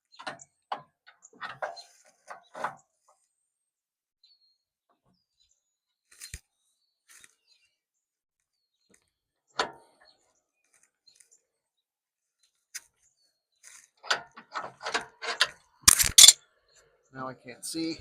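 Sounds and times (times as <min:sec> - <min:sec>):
faint birds chirping: 0:00.0 - 0:15.8, 0:16.4 - 0:18.0
tools clinking on metal: 0:15.3 - 0:16.4
quick clicks: 0:15.9 - 0:16.4.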